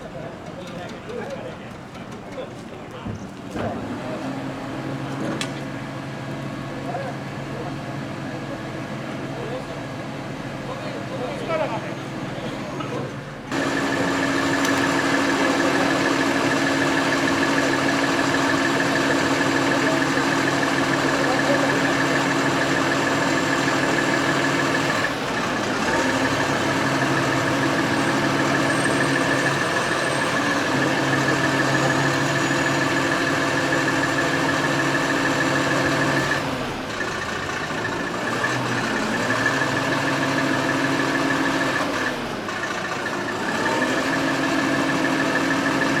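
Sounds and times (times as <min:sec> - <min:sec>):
engine running steadily: 0:12.4 - 0:46.0.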